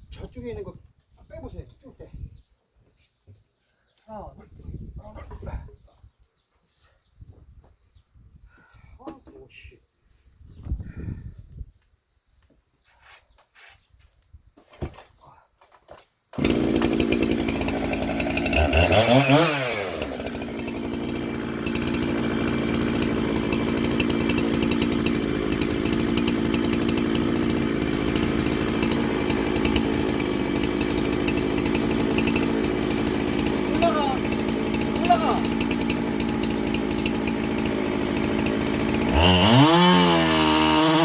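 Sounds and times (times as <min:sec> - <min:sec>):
woodworking power tool running: 0:16.4 - 0:41.0.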